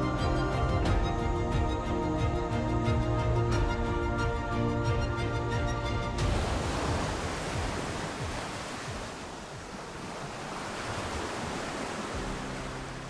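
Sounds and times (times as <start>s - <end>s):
background music: 0.0s - 9.1s, 11.5s - 13.0s
ocean waves and surf: 6.1s - 13.0s.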